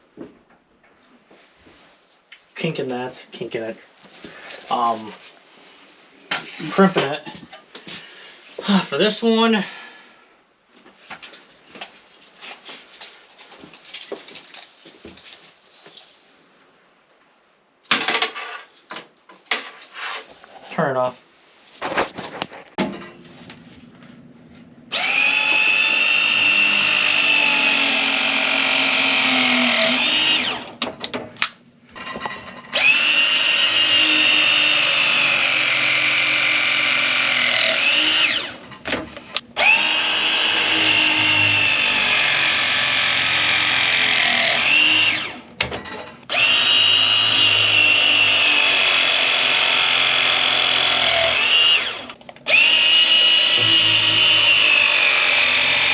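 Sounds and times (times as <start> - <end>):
power tool motor whining: 24.9 - 30.8, 32.7 - 38.6, 39.6 - 45.4, 46.3 - 55.9.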